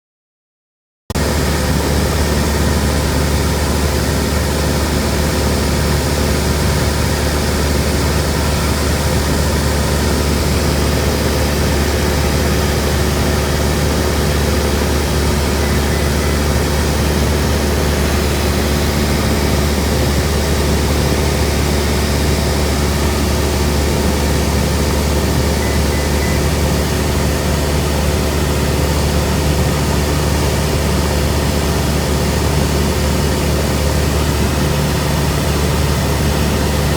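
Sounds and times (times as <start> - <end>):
propeller plane engine drone: 1.2 - 36.9.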